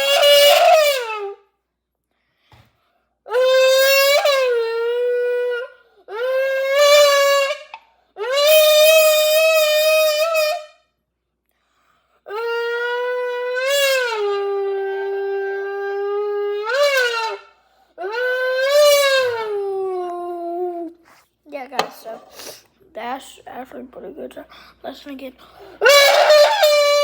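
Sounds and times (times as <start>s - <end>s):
lips buzzing on a drink can: 15.7s - 17.5s.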